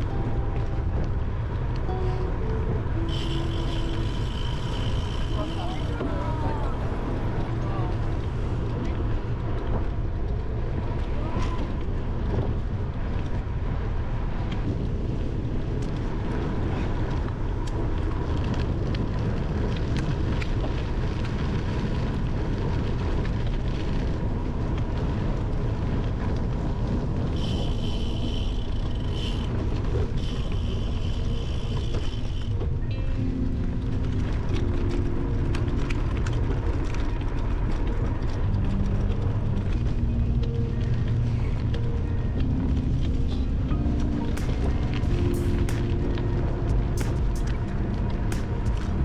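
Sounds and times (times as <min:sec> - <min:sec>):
bicycle tyre rumble on gravel: 0:03.0 - 0:49.0.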